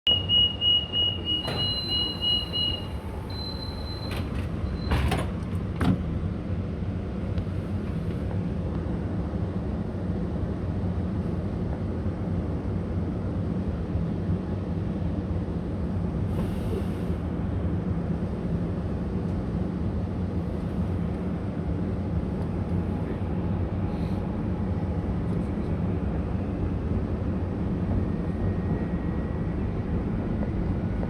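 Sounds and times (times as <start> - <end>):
fast pulsing door warning beeps: 0.1 - 5.0
train doors shutting: 0.1 - 6.2, 16.3 - 17.2
train running rumble: 1.2 - 31.0.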